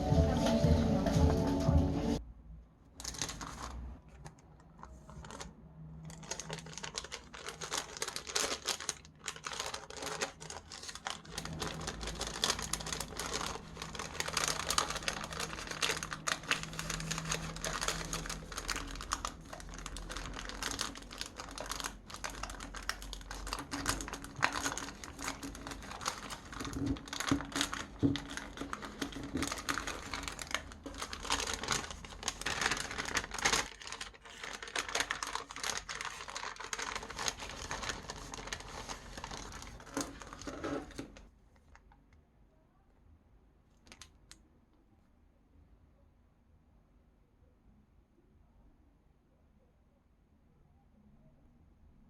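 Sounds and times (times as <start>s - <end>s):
sticker sheets crinkling: 3.0s - 5.5s, 6.1s - 41.2s.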